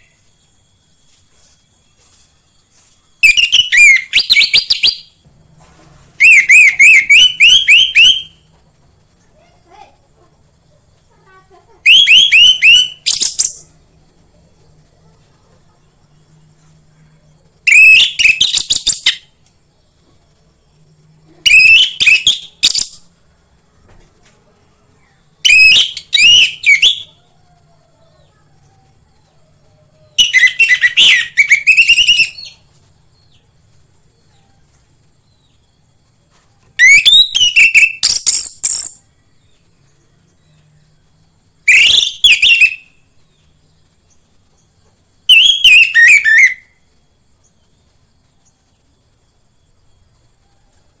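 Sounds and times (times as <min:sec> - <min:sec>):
thrush whistled song: 0:00.0 - 0:05.2, 0:06.2 - 0:08.5, 0:11.9 - 0:13.8, 0:17.7 - 0:19.4, 0:21.4 - 0:23.1, 0:25.4 - 0:27.3, 0:30.1 - 0:32.7, 0:36.8 - 0:39.1, 0:41.6 - 0:43.1, 0:45.2 - 0:46.9.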